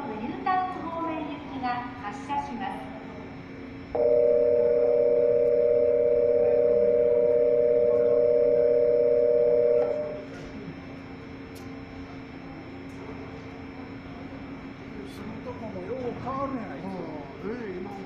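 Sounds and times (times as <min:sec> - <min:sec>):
two-note electronic tone: 0:04.0 - 0:10.2.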